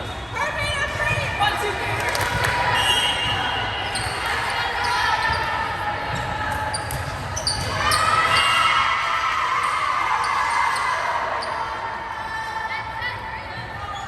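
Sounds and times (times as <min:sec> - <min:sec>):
crowd voices in gym: 0:00.0 - 0:14.0
sneaker squeaks on court: 0:02.0 - 0:08.5.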